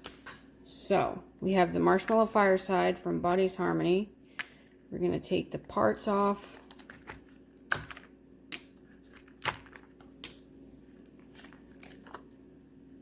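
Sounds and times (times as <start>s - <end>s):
plastic packaging crinkling: 6.3s - 12.6s.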